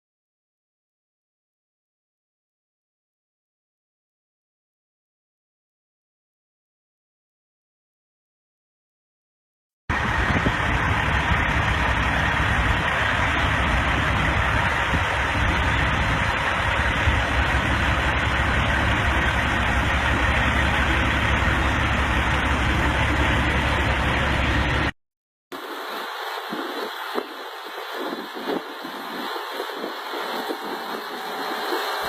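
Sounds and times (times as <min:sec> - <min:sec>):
vehicle engine and road noise: 0:09.9 - 0:25.0, 0:25.6 - 0:32.0.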